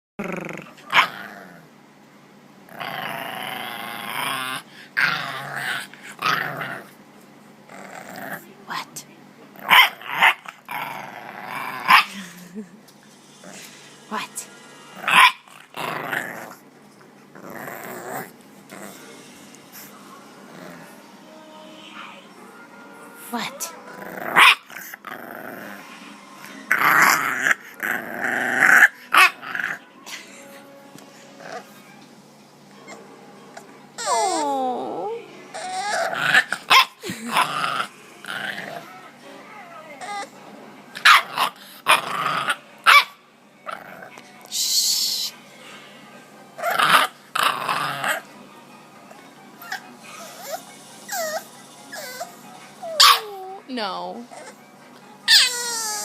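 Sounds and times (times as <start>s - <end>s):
puppy growling: 0.2s - 1.8s, 2.6s - 7.0s, 7.6s - 8.6s, 9.5s - 14.0s, 15.0s - 21.2s, 23.8s - 29.9s, 30.5s - 32.0s, 32.7s - 44.5s, 46.6s - 48.4s, 49.1s - 56.0s
puppy yips: 49.6s - 53.4s, 55.3s - 56.0s.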